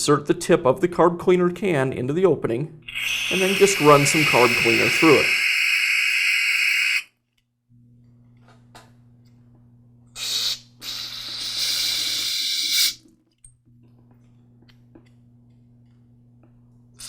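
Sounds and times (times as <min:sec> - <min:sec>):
aerosol spray hissing: 0:02.9 - 0:07.1, 0:10.2 - 0:13.0.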